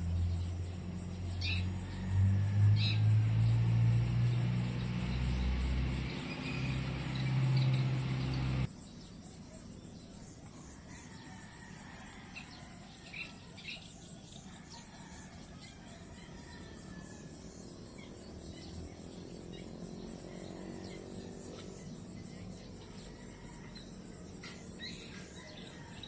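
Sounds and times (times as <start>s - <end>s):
low droning hum: 0.0s - 8.7s
bird chirps: 0.0s - 10.2s
crickets trilling: 0.0s - 26.0s.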